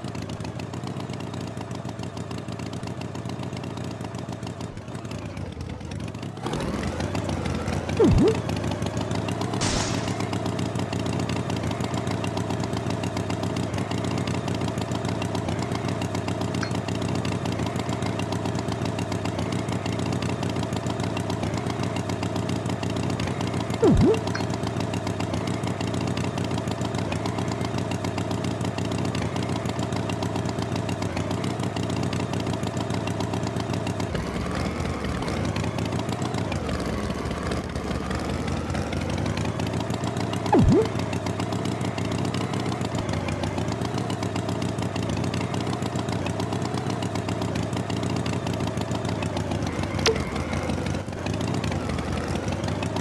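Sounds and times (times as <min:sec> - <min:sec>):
tractor engine running: 0:00.0 - 0:53.0
loud thump: 0:09.6 - 0:10.4.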